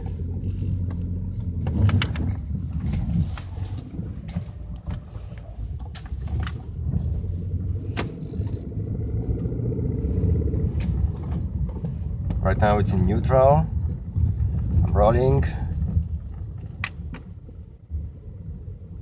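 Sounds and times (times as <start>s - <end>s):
small clicks and rattles: 0.0s - 8.8s, 13.8s - 17.7s
car engine low rumble: 0.0s - 19.0s.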